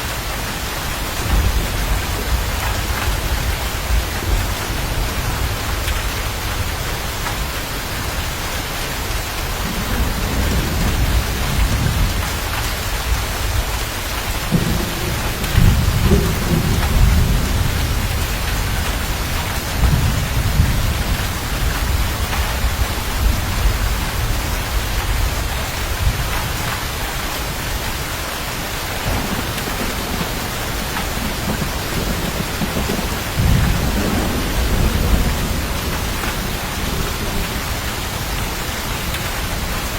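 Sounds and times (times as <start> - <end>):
heavy rain: 0.0 - 39.9
thunder rumbling: 1.0 - 28.0, 28.6 - 39.9.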